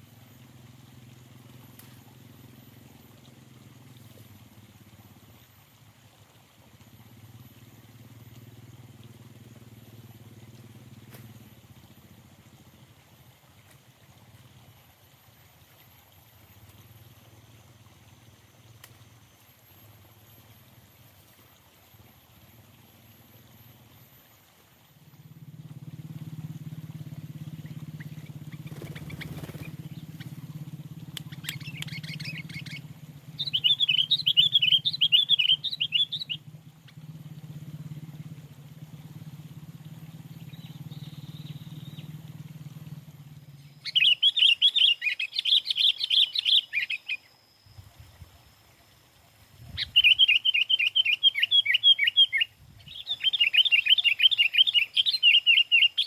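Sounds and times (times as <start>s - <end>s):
steady low hum: 0.0s - 44.3s
bulbul chattering trills: 26.6s - 37.1s, 40.2s - 47.3s, 49.7s - 56.0s.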